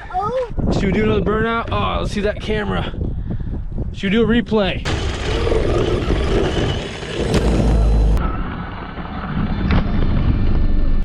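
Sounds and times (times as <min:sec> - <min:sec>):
toy truck motor and spinning tyres: 0:04.9 - 0:08.2
heavy thud and low rumble: 0:04.9 - 0:08.3.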